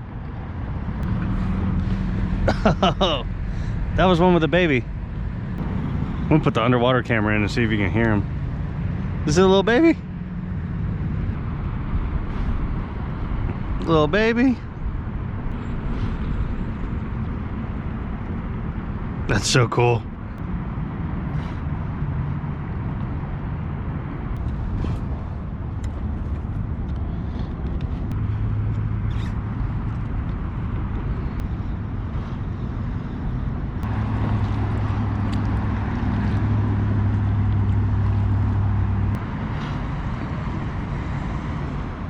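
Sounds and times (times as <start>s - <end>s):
rumbling water and wind: 0.0s - 42.0s
boat motor humming: 24.4s - 39.9s.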